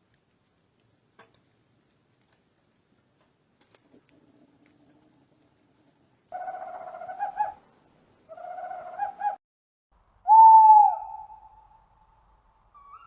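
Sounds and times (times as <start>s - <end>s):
bird hooting calls: 6.3s - 7.6s, 8.3s - 9.4s, 10.3s - 11.8s, 12.7s - 13.0s.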